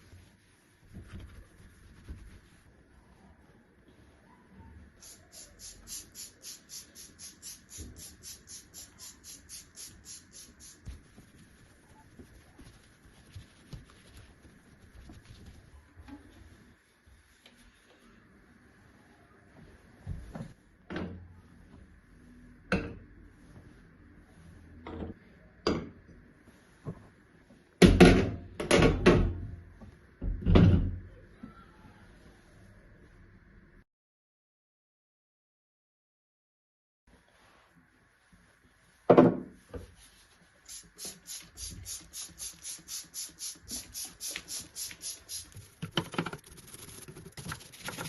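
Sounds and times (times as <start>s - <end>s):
scrubbing strokes: 0.0s - 3.4s, 5.0s - 18.1s.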